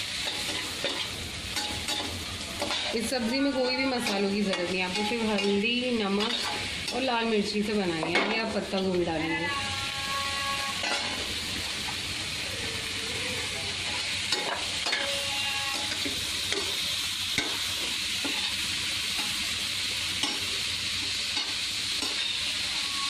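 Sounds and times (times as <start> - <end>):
cabbage sizzling in hot oil: 0.0 - 23.0
spatula scraping and tapping pan: 0.2 - 7.1, 20.2 - 20.5, 21.3 - 22.4.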